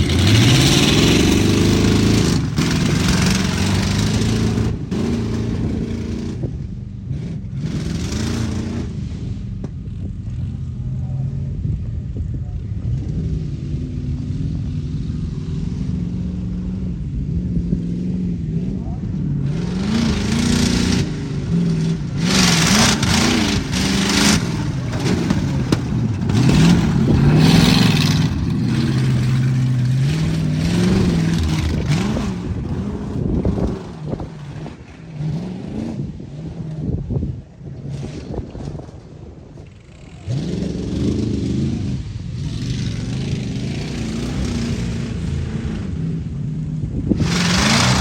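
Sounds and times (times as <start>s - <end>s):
truck engine revving: 0.0s - 48.0s
rushing noise: 19.4s - 36.3s, 47.0s - 48.0s.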